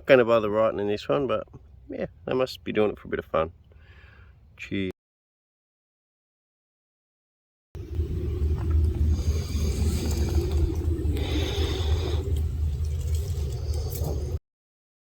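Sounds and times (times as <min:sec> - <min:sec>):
low rumble: 0:07.8 - 0:14.4.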